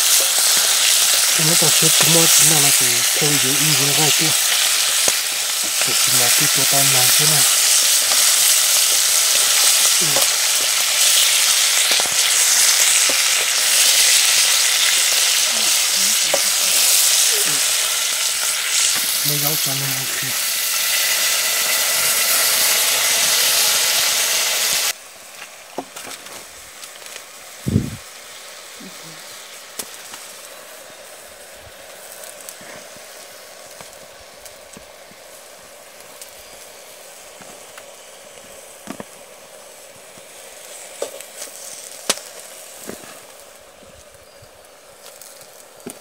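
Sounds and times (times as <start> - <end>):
loud sizzling hiss: 0.0 - 46.0.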